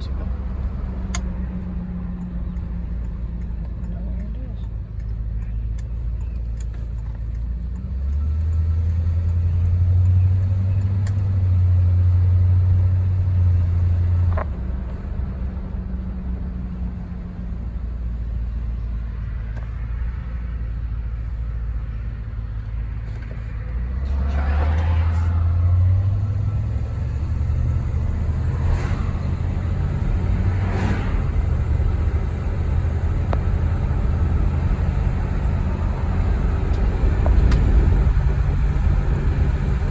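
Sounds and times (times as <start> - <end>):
car engine driving: 0.0 - 39.9.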